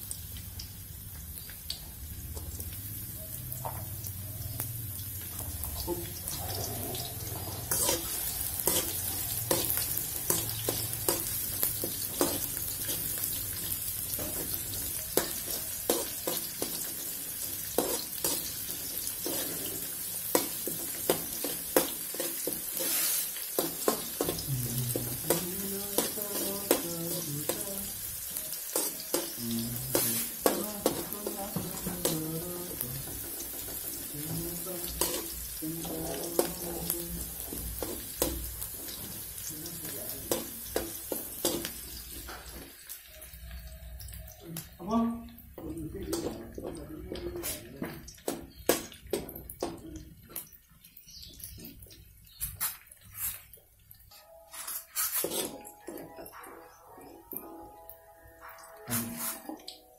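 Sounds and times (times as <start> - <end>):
shallots sizzling in oil: 0.0 - 56.0
spatula scraping a wok: 6.3 - 13.3, 17.7 - 24.4, 54.6 - 55.7, 58.9 - 59.6.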